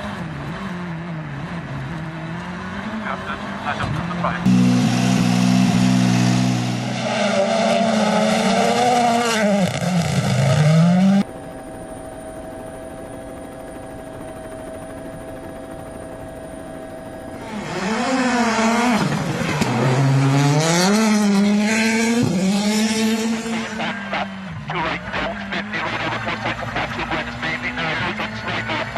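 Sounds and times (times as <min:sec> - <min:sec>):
rally car engines at full throttle: 0:00.0 - 0:11.3, 0:17.4 - 0:28.9.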